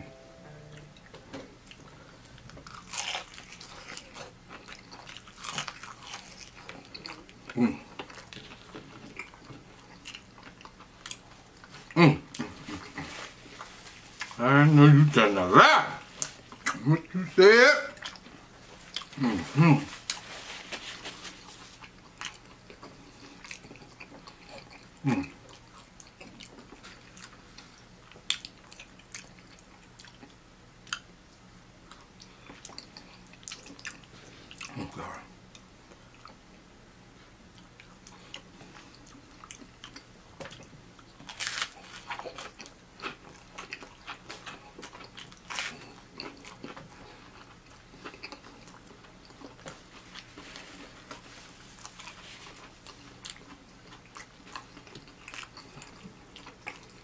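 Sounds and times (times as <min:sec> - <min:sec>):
man chewing food: 0:00.7 - 0:14.4, 0:16.0 - 0:17.3, 0:17.9 - 0:57.0
food crunches: 0:01.7 - 0:11.8, 0:37.8 - 0:57.0.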